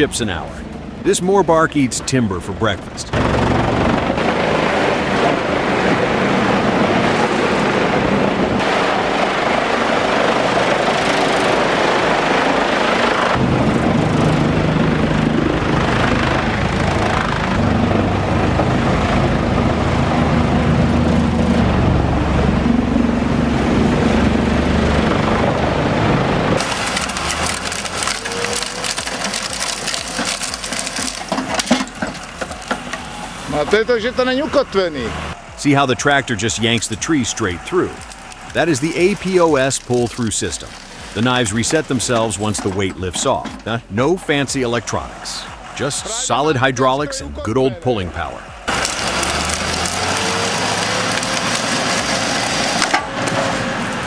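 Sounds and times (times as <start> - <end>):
wood chipper diesel engine: 0.0 - 54.0
sharp crackles: 26.6 - 33.7, 35.4 - 43.7, 48.5 - 54.0.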